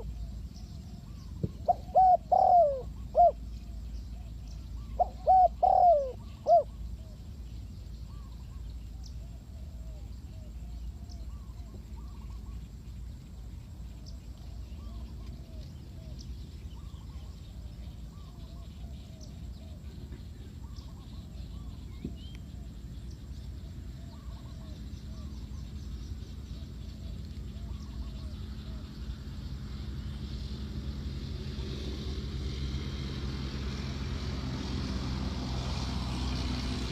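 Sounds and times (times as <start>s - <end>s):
low background rumble: 0.0s - 36.9s
doves cooing: 0.8s - 3.5s, 4.2s - 7.2s.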